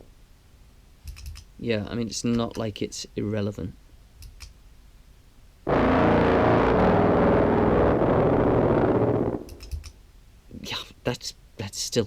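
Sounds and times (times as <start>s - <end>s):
distorted buzzing clarinet note: 5.7s - 9.7s.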